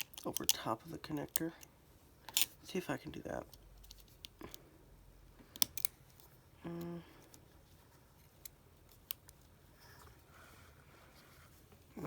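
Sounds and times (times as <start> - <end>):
person humming: 6.6 - 7.2.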